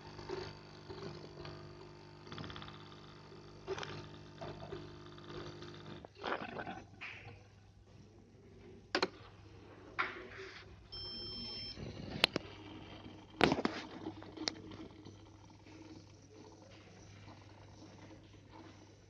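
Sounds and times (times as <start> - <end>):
electronic beep: 10.9 - 12.2.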